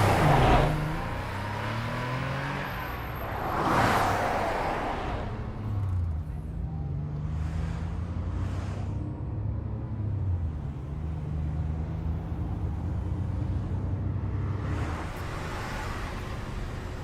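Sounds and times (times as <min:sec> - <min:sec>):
car engine humming: 0:00.0 - 0:06.8, 0:10.3 - 0:17.0.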